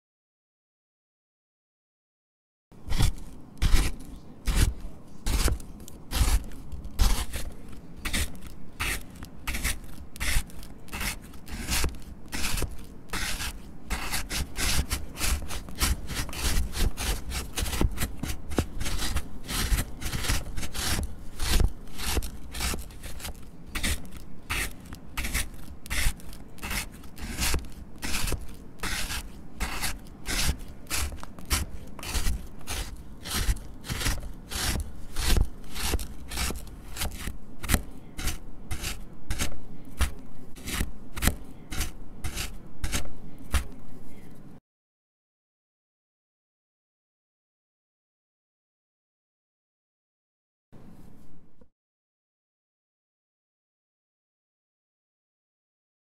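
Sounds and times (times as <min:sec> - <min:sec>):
knife cutting crumbly bar: 0:02.8 - 0:43.9.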